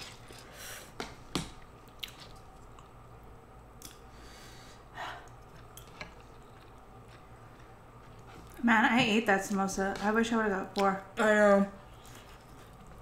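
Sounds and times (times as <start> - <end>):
chewing and mouth noises: 1.8 - 3.0, 5.2 - 8.6, 11.9 - 13.0
person breathing: 4.1 - 5.3.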